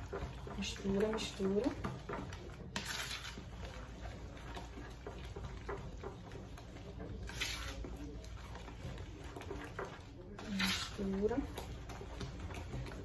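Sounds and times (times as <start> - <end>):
utensil scraping a bowl: 0.0 - 13.0.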